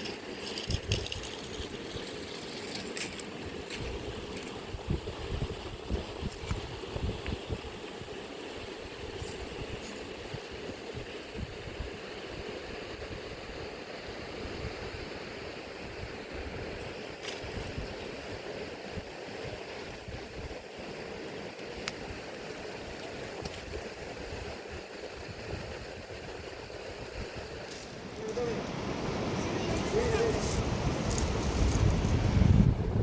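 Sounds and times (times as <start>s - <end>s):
fast river rushing: 15.2s - 32.5s.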